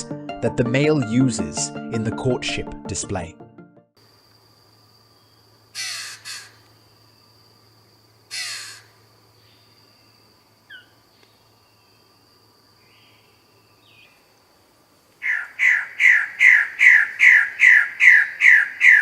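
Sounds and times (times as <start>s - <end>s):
harsh crow-like bird calls: 5.7s - 6.6s, 8.3s - 9.0s, 15.2s - 19.0s.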